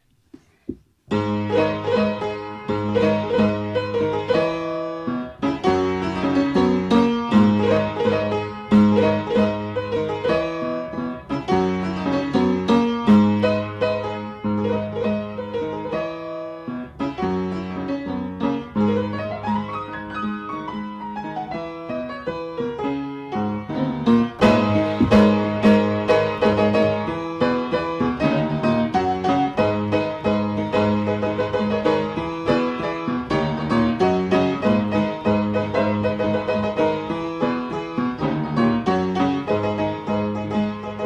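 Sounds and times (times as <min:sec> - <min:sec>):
solo piano chords: 0:01.1 - 0:41.0.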